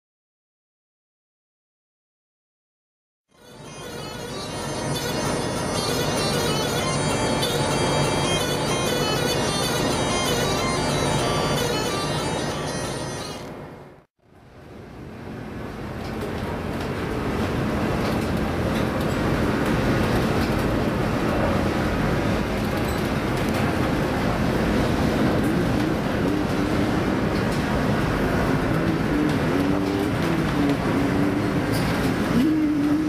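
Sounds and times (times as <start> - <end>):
wavering whine: 3.3 - 14.0
loud rumbling aboard ship: 14.7 - 33.0.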